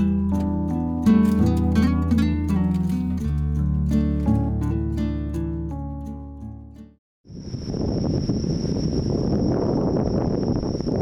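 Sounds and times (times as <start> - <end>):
high-pitched whine: 7.3 - 11.0
wind buffeting microphone: 7.3 - 11.0.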